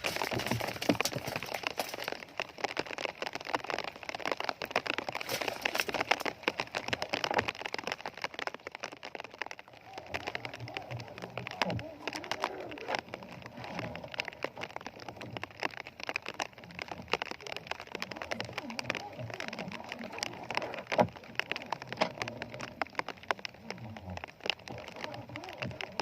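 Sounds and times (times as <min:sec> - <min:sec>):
rain patter: 0:00.0 - 0:26.0.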